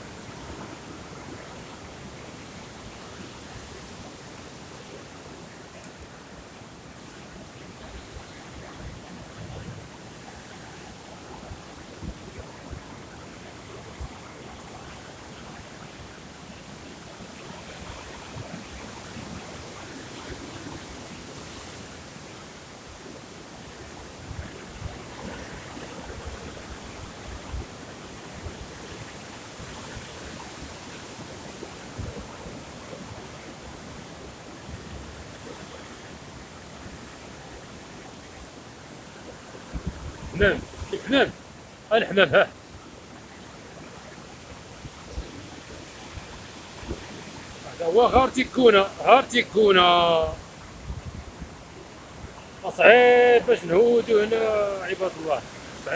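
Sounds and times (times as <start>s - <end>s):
sea surf: 0.0s - 55.9s
wind: 0.0s - 55.9s
wind buffeting microphone: 39.4s - 41.6s, 44.4s - 48.3s, 50.2s - 52.7s.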